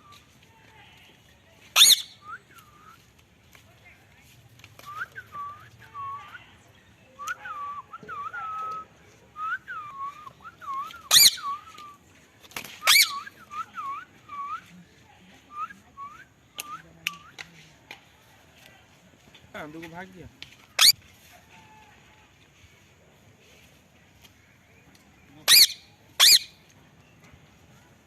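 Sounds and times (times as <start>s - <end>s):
parrot shrill calls: 1.8s - 2.2s, 11.1s - 11.4s, 12.8s - 13.2s, 20.8s - 21.0s, 25.4s - 26.5s
parrot whistling: 1.8s - 2.4s, 11.1s - 11.6s, 12.8s - 13.3s, 20.8s - 21.0s, 25.5s - 26.5s.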